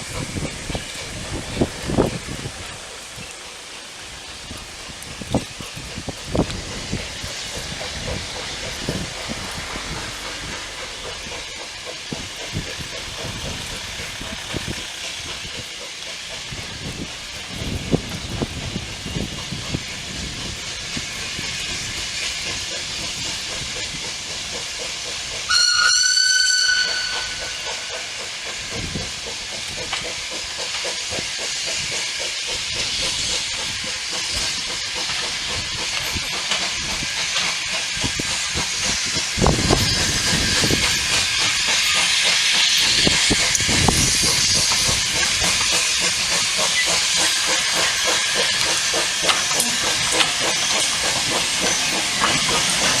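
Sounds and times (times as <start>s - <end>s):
steam locomotive hissing: 0.0s - 53.0s
train whistle blast: 25.5s - 27.5s.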